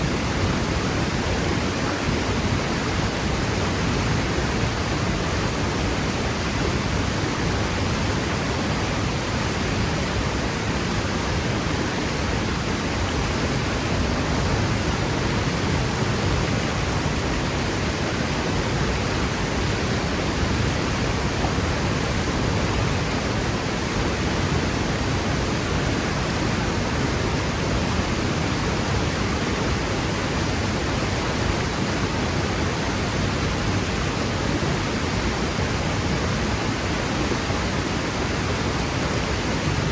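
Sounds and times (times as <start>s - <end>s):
waterfall roaring into pool: 0.0s - 39.9s.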